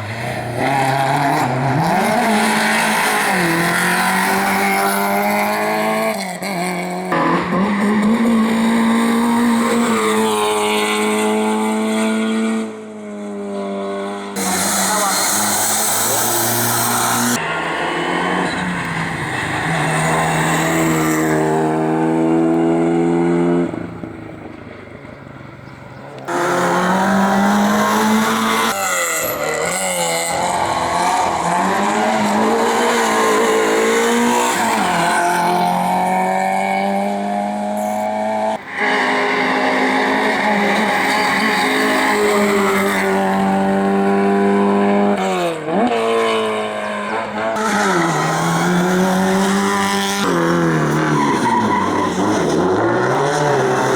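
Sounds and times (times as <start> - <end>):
race car engines accelerating: 0.0 - 53.9
tyre squeal: 46.7 - 53.0.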